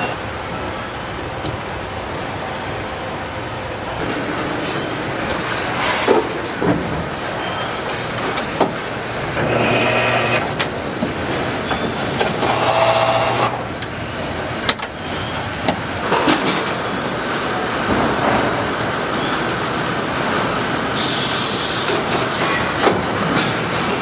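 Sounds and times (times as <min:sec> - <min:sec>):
machine buzzing whine: 0:00.0 - 0:15.5
steady machinery noise: 0:00.0 - 0:24.0.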